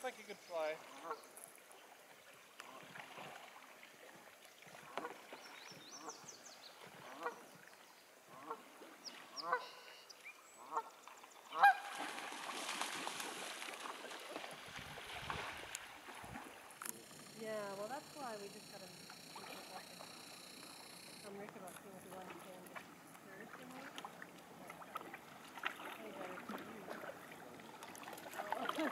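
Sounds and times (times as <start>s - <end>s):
water splashing: 0.0s - 9.7s, 10.6s - 28.9s
geese honking: 9.4s - 10.0s, 10.6s - 10.9s, 11.5s - 12.1s.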